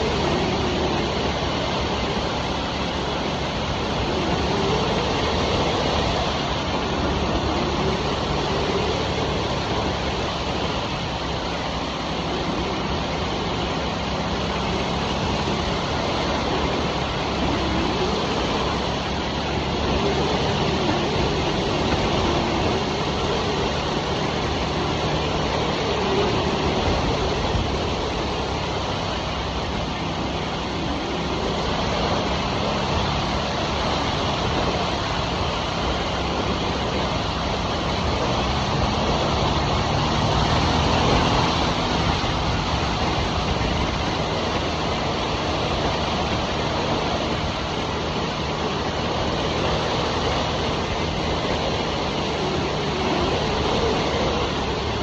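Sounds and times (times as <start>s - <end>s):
motorcycle engine running: 0.0s - 55.0s
wind and road rush: 0.0s - 55.0s.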